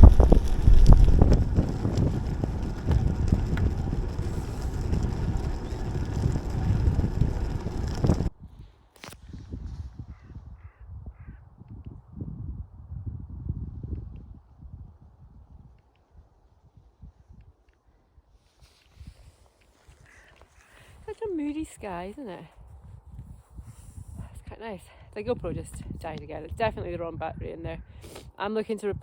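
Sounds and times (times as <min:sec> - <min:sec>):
bicycle road noise: 0:00.0 - 0:09.8
wind buffeting microphone: 0:00.0 - 0:17.5, 0:20.0 - 0:29.0.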